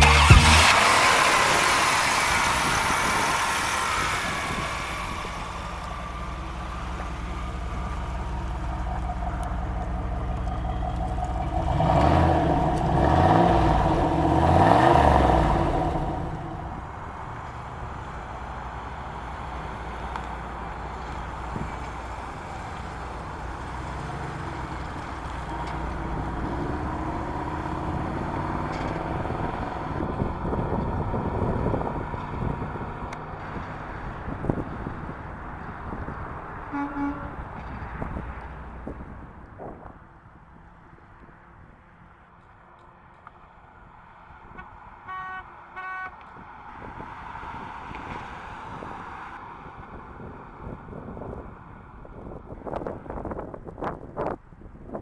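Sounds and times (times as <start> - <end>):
car horn tooting: 0.0 - 1.5, 36.6 - 38.1, 44.5 - 46.2
car engine running: 0.0 - 39.4
rush of vehicle noise: 0.0 - 55.0.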